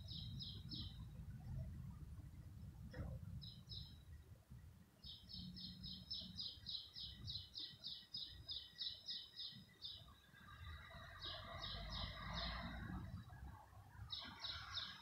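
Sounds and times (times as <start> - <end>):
songbird singing repeated high notes: 0.0 - 1.1, 3.4 - 4.2, 5.0 - 13.2, 14.0 - 15.0
faint low rumble: 0.0 - 7.4.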